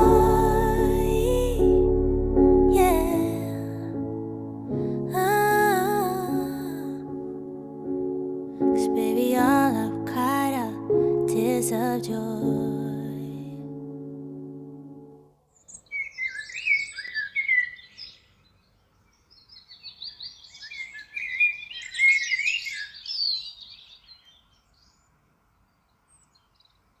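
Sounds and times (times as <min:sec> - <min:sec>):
sustained music chord: 0:00.0 - 0:15.3
songbird warbling and chirping: 0:15.6 - 0:25.1.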